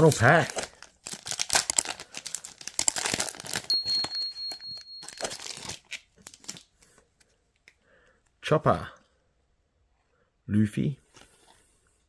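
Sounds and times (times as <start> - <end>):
foil pack tearing and crinkling: 0.0 - 3.7, 5.2 - 6.7.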